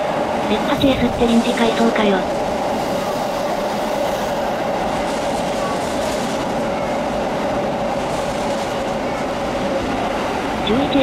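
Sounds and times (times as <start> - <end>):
electric train running past: 0.0 - 11.0.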